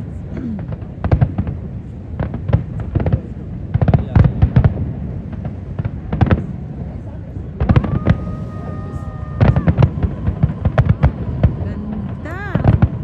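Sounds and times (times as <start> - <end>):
fireworks bangs and crackles: 0.0 - 13.0
steady high tone: 7.8 - 12.8.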